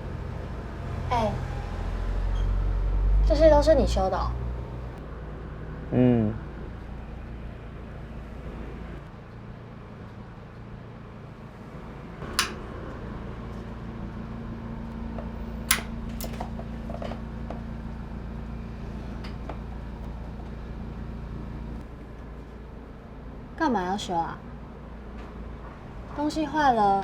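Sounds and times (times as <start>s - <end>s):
low mechanical hum: 0.0s - 27.0s
sharp clicks: 12.3s - 12.6s, 15.7s - 16.4s.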